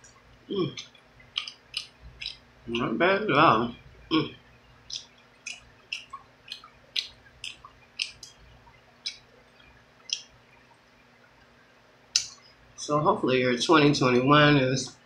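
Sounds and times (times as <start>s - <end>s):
wet lip smacks and chewing: 0.7s - 2.5s, 4.9s - 10.4s.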